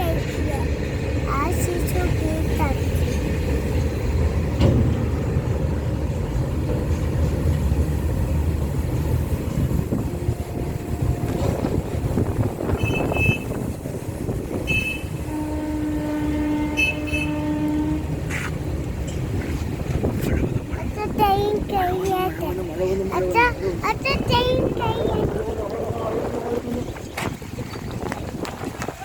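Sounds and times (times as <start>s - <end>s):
train wheels rumbling on track: 0.0s - 29.0s
locomotive horn: 9.7s - 13.8s, 14.5s - 18.3s.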